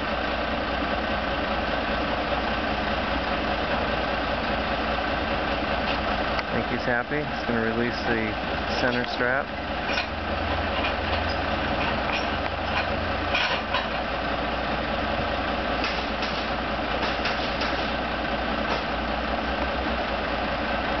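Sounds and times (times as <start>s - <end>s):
diesel truck engine idling: 0.0s - 21.0s
light clanks and clicks: 9.9s - 14.0s.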